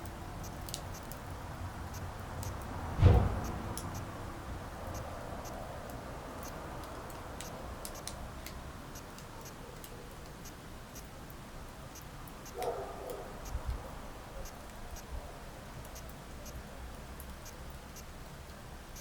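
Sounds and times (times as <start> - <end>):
wood fire crackling: 0.0 - 12.5.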